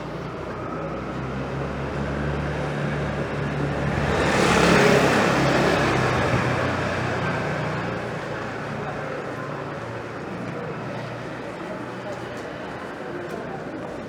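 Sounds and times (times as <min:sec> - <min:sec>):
vehicle driving past: 0:00.0 - 0:07.9.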